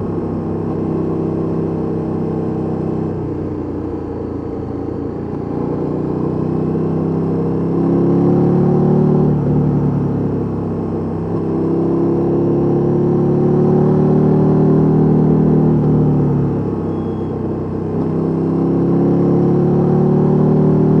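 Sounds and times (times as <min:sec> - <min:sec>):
motorcycle engine revving: 0:17.9 - 0:21.0.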